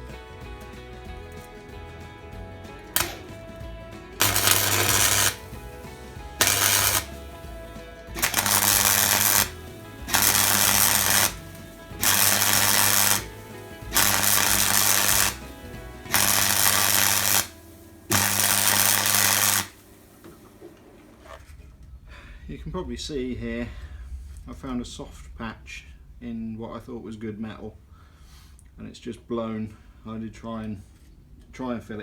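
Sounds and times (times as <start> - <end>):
welding arc crackling: 3.0 - 3.6, 4.2 - 21.4
welder hum: 3.0 - 21.4.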